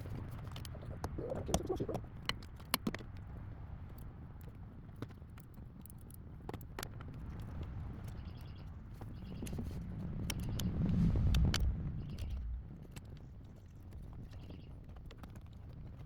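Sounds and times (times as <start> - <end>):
low steady hum: 10.4 - 12.9.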